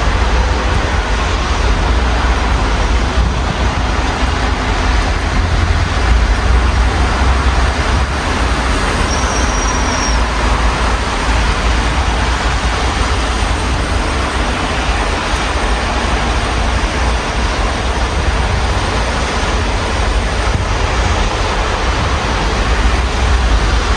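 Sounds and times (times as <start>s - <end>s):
low rumble of city traffic: 0.0s - 23.9s
steady rain: 0.0s - 23.9s.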